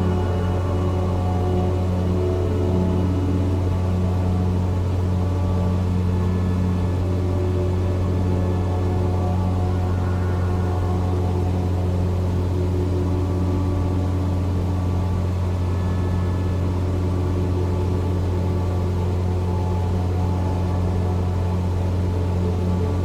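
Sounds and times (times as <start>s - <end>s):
propeller plane engine droning: 0.0s - 23.0s.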